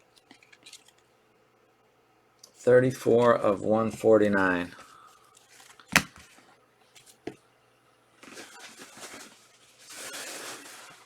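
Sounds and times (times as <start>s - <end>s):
cards rustling and sliding: 5.4s - 6.4s.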